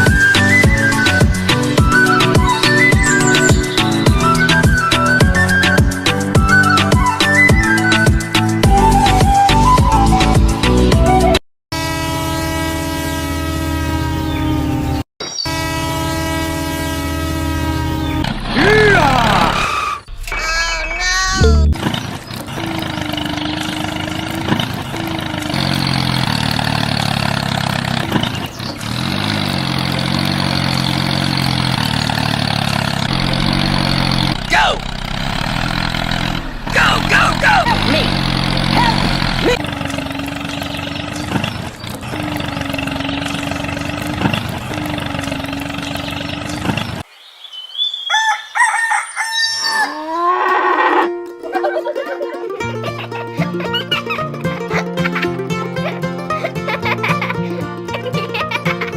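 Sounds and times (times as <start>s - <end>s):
motor running: 21.4s - 47.0s
rooster crowing: 47.9s - 50.7s.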